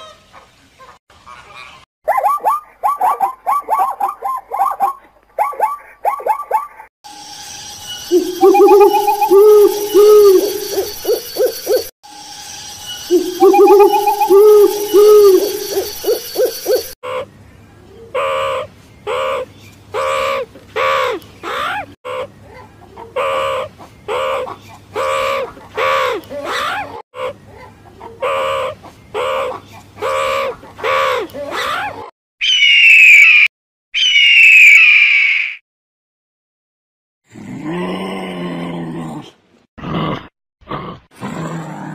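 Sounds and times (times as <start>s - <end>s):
loud high-pitched bird calls: 7.9s - 11.9s, 12.9s - 17.3s, 28.2s - 35.6s
bird calling: 8.1s - 11.9s, 13.1s - 17.0s.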